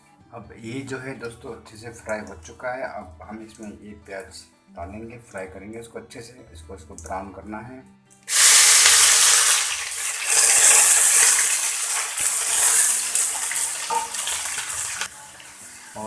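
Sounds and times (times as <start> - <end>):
onions sizzling in hot oil: 8.3 - 16.0.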